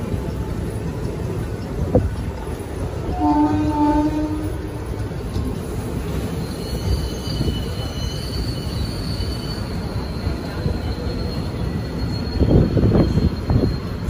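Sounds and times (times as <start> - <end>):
train wheels rumbling on track: 0.0 - 14.0
high wheel squeal: 5.8 - 14.0.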